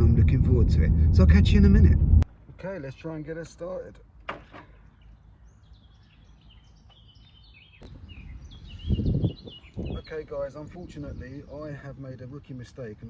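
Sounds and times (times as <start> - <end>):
loud low rumble: 0.0 - 2.3
birds chirping: 4.5 - 13.0.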